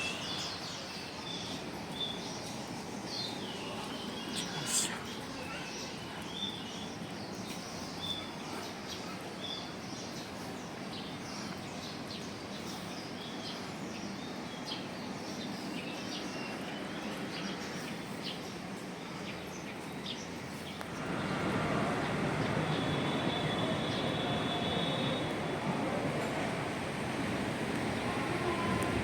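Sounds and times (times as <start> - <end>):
small birds chirping: 0.0 - 29.0
steady background noise: 0.0 - 29.0
whistled bird notes: 22.0 - 25.9.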